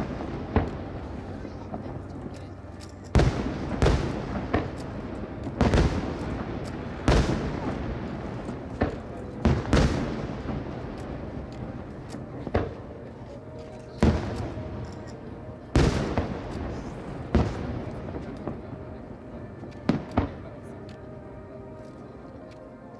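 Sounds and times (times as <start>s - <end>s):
fireworks booming: 0.0s - 2.0s, 3.1s - 11.4s, 14.0s - 14.8s, 15.7s - 18.7s.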